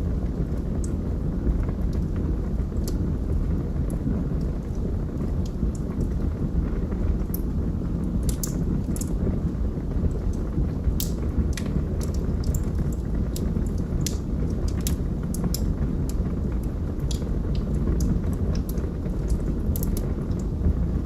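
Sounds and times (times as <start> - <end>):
log fire crackling: 0.0 - 21.0.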